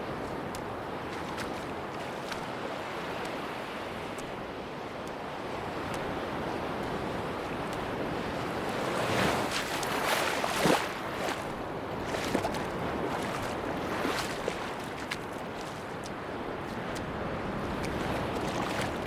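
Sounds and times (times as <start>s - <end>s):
sea waves on beach: 0.0s - 19.0s.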